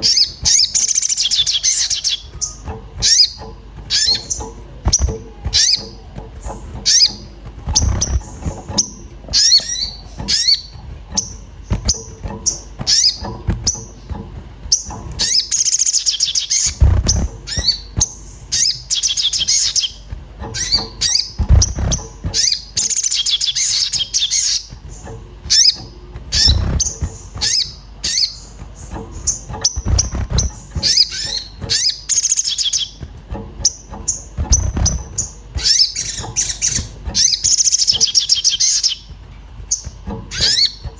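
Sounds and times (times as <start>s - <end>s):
bird chirping and twittering: 0.0s - 40.9s
short dull thumps: 0.0s - 40.9s.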